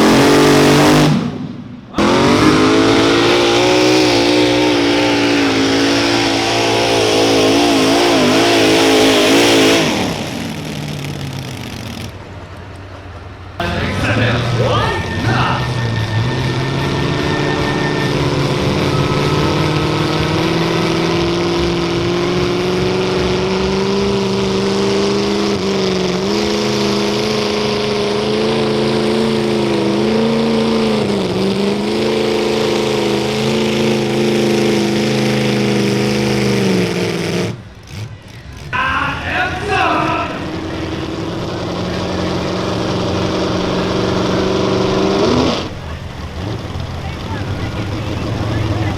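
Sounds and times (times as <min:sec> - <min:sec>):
tractor engine running hard: 0:00.0 - 0:48.9.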